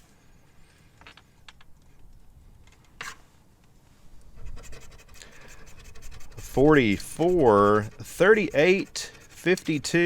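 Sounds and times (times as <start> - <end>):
lottery ticket scratching: 4.4 - 10.0.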